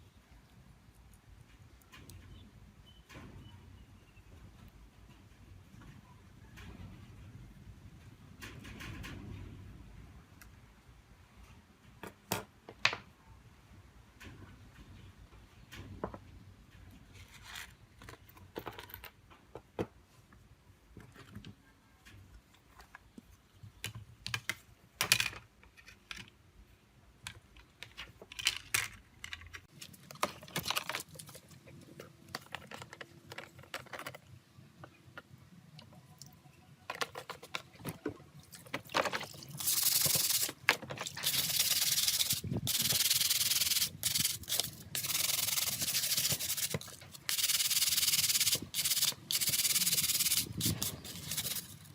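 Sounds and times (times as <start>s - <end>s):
hand sanding strokes: 41.3s - 51.7s.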